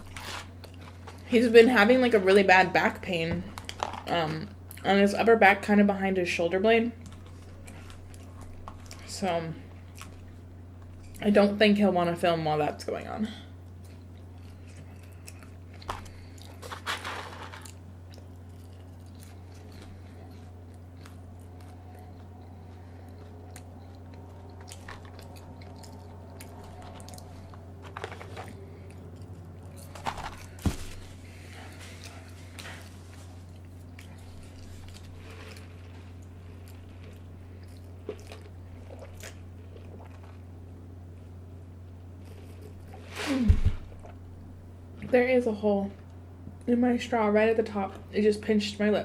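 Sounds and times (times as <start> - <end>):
person chewing crunchy food: 0.0 - 1.3, 7.0 - 11.2, 13.6 - 41.4
steady low hum: 0.0 - 49.0.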